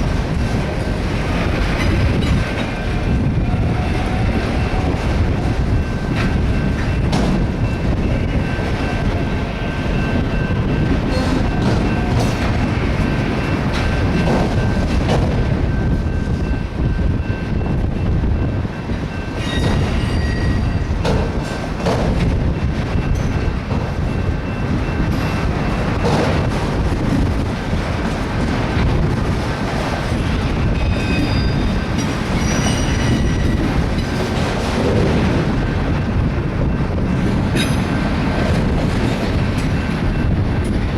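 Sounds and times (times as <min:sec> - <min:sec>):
freight train wheels rumbling: 0:00.0 - 0:40.9
high wheel squeal: 0:19.4 - 0:20.9, 0:30.8 - 0:33.6.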